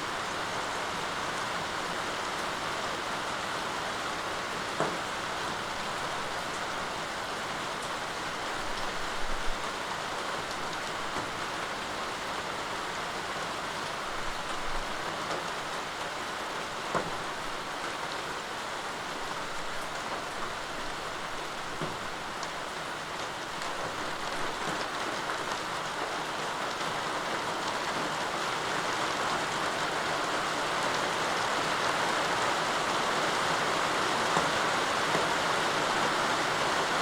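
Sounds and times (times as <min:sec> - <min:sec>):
steady rain hissing: 0:00.0 - 0:37.0.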